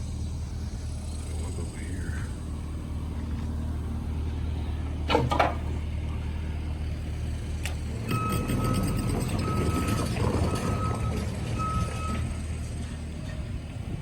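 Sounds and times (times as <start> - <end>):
vehicle engine humming: 0.0 - 14.0
reversing beeper: 8.1 - 12.4.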